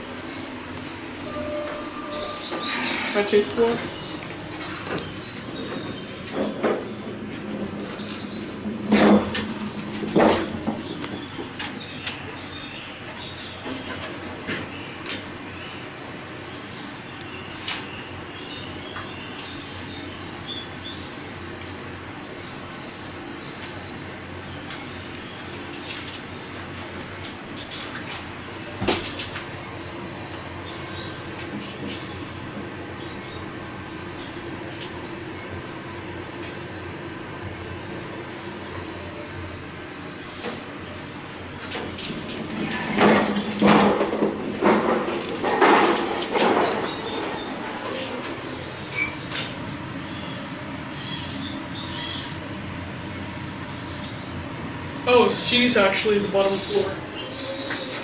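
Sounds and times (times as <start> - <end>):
birds chirping and whistling: 0.0 - 31.4, 32.0 - 44.8, 45.4 - 58.0
steady hum: 0.0 - 58.0
bird chirping call: 0.1 - 8.8
loud knocks: 41.8 - 47.0.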